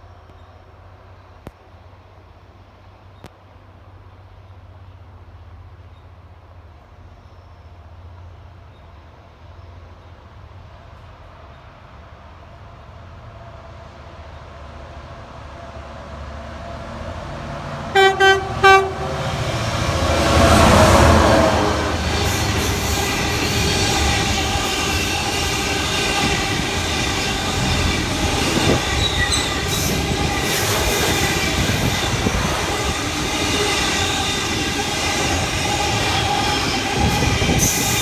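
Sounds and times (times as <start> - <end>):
train rumble: 0.0 - 38.0
train horn toots: 17.9 - 38.0.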